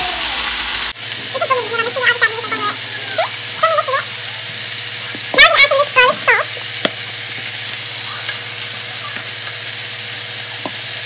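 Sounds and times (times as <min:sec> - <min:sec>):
vegetables sizzling in a skillet: 0:00.0 - 0:11.0
child chattering: 0:01.4 - 0:04.2, 0:05.1 - 0:06.6, 0:08.0 - 0:09.4.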